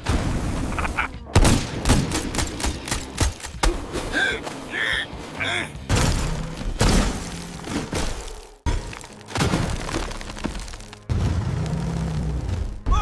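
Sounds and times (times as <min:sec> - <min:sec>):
background music: 0:00.0 - 0:13.0
cartoon thuds and bangs: 0:05.9 - 0:08.8.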